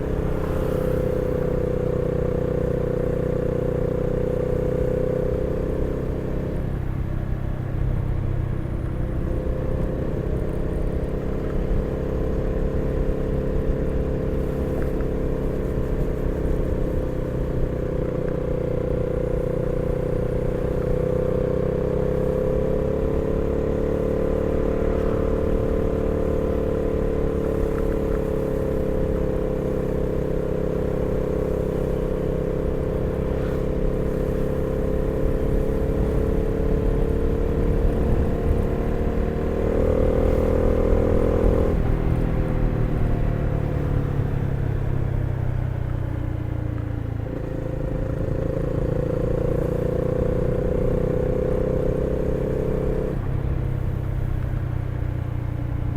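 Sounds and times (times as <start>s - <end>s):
motorcycle engine: 0.0s - 55.9s
wind rumble on microphone: 32.5s - 55.9s.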